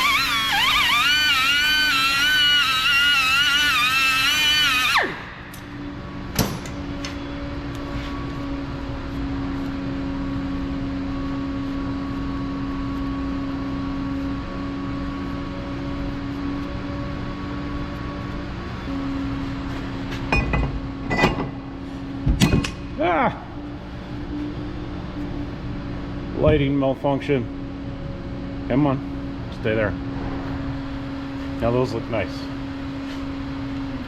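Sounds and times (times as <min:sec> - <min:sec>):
rotary power tool whining: 0:00.0 - 0:06.0
low steady hum: 0:00.0 - 0:34.0.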